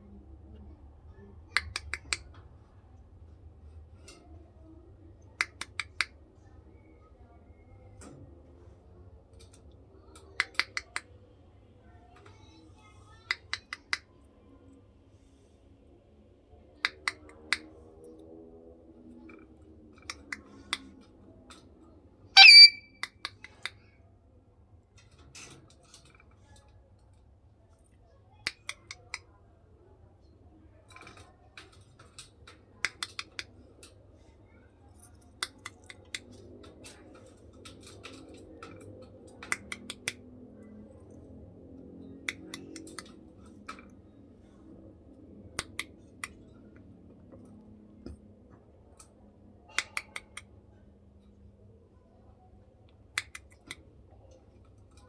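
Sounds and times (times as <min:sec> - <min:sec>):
parrot beak clicks: 0:01.6 - 0:02.3, 0:22.4 - 0:23.2
parrot squawk: 0:22.4 - 0:22.9.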